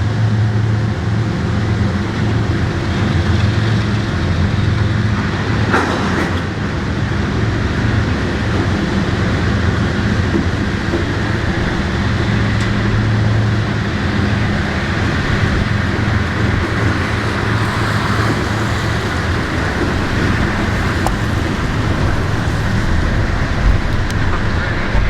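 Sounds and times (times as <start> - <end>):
freight train wheels rumbling on rail: 0.0 - 25.0
low hum: 0.0 - 25.0.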